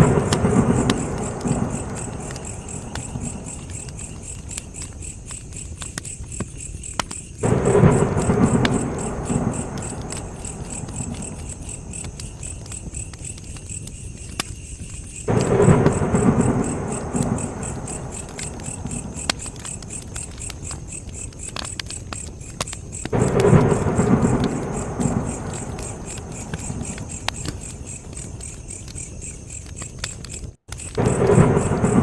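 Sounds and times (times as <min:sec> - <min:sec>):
deep rumbles: 0:00.0 - 0:04.6, 0:07.4 - 0:12.8, 0:15.3 - 0:20.4, 0:23.1 - 0:28.2, 0:31.0 - 0:32.0
campfire crackling: 0:00.0 - 0:32.0
crickets chirring: 0:00.0 - 0:32.0.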